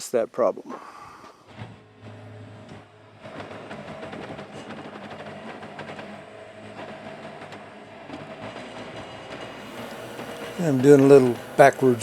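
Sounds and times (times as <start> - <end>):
diesel engine running: 9.4 - 12.0.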